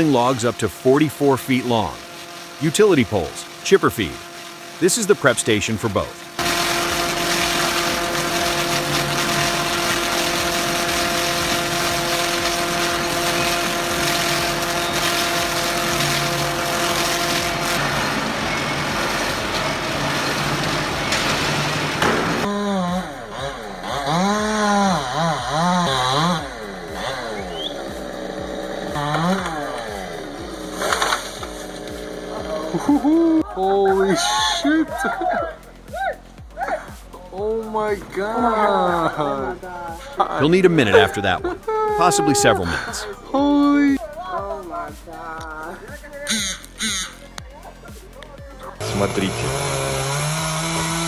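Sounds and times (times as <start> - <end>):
loud machinery running: 0.0 - 33.4, 48.8 - 51.0
engine revving: 1.6 - 33.4, 48.8 - 51.0.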